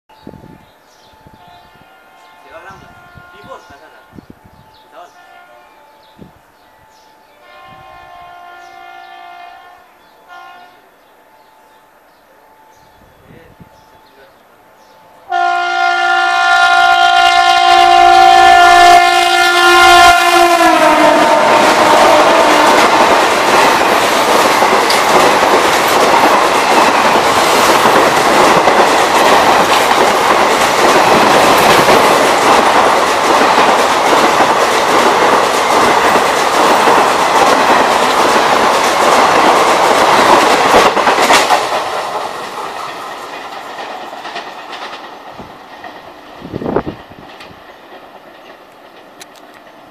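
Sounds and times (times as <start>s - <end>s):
train coaches rushing past: 0.1s - 49.9s
locomotive horn blast: 1.4s - 3.7s, 5.0s - 5.8s, 7.4s - 10.9s, 15.3s - 23.0s.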